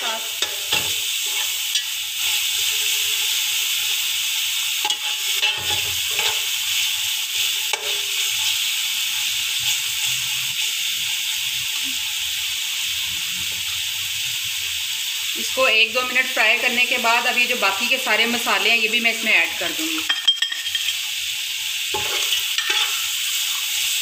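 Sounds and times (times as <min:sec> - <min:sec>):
food sizzling in oil: 0:00.0 - 0:24.0
spatula scraping pot: 0:21.9 - 0:23.0.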